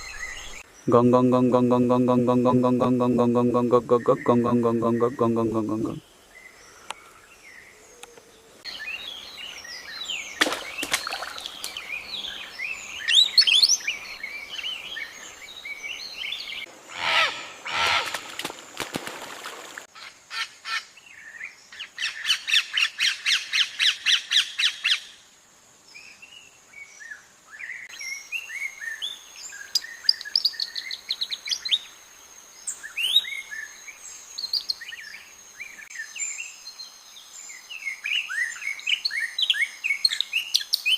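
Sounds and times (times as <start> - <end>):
birds chirping: 0.0 - 18.2
rapid repeated bird notes: 0.9 - 6.0.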